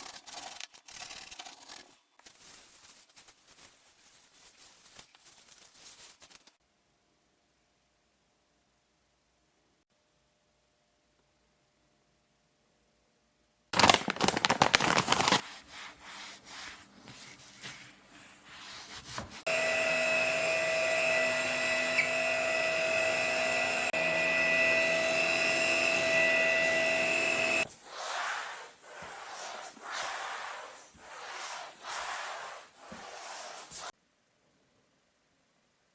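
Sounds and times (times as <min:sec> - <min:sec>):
rubbing and scrubbing: 0:00.0 - 0:06.6, 0:13.8 - 0:19.5, 0:26.0 - 0:34.0
suction motor whining: 0:19.5 - 0:27.6.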